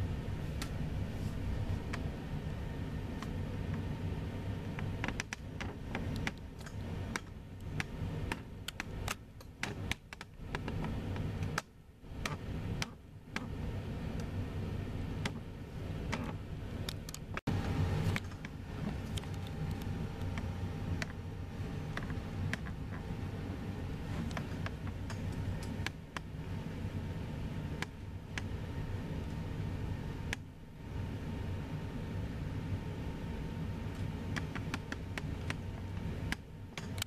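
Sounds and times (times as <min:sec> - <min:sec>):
jet engines rumbling: 0:00.0 - 0:37.0
sharp clicks and taps: 0:04.7 - 0:13.6, 0:21.9 - 0:23.1, 0:34.3 - 0:35.6.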